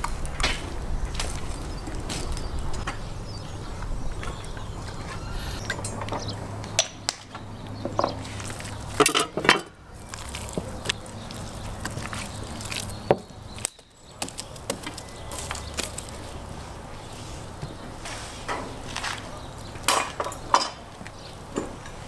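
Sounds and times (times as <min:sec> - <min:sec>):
utensils and dishes clinking: 0:07.9 - 0:16.4, 0:18.4 - 0:22.0.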